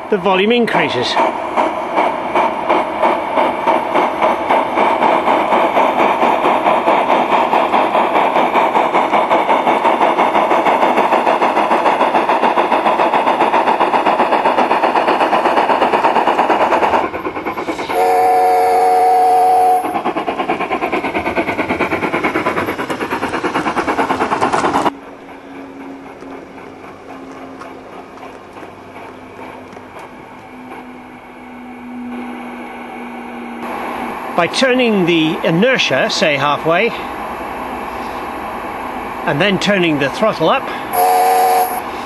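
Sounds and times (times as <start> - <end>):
model steam locomotive chuffing: 0.0 - 31.4, 32.6 - 42.0
steam whistle: 17.8 - 20.0, 40.9 - 41.8.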